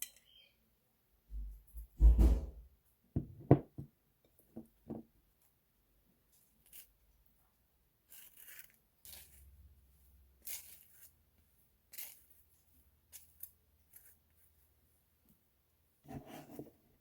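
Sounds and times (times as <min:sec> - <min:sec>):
rustling and scraping: 0:16.0 - 0:17.0.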